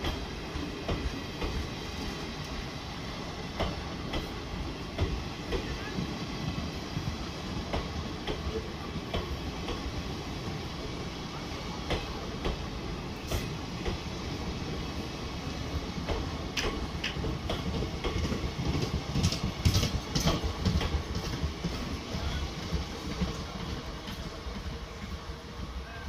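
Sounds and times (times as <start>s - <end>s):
train wheels rumbling on rails: 0.0s - 26.0s
wheels clicking over rail joints: 16.0s - 21.8s.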